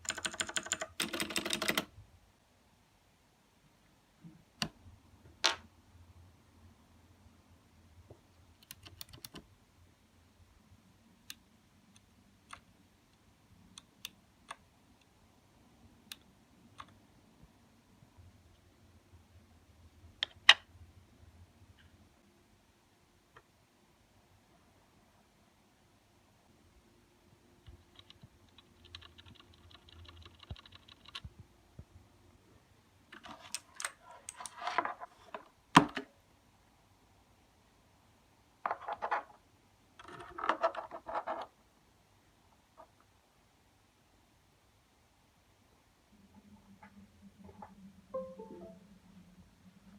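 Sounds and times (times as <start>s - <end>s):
mechanical keyboard clicks: 0.0s - 1.9s, 8.6s - 9.4s, 27.9s - 31.2s
mechanical keyboard key clicks: 8.6s - 9.4s.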